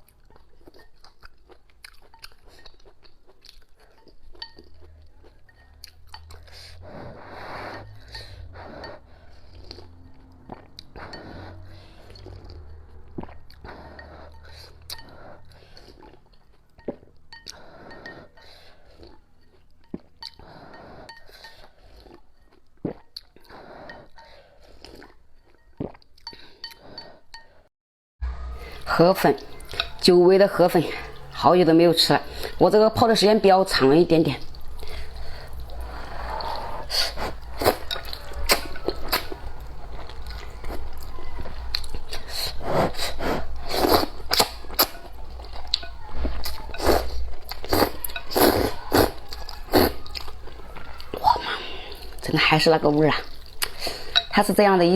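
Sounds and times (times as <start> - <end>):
chewing: 0.0 - 27.6, 28.6 - 54.9.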